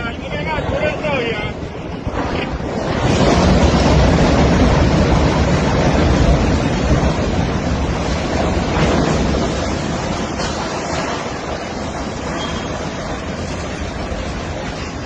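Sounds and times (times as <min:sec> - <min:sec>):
sea: 0:00.0 - 0:15.0
wind buffeting microphone: 0:00.0 - 0:15.0
wind rushing: 0:00.0 - 0:15.0.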